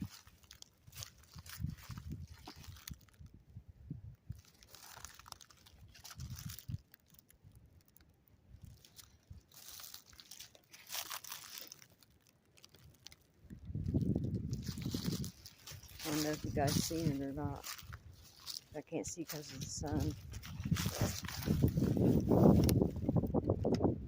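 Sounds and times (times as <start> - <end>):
rustling and crunching: 0.0 - 3.4, 4.1 - 23.9
wind buffeting microphone: 1.4 - 4.5, 5.8 - 6.8, 13.4 - 18.3, 18.9 - 24.0.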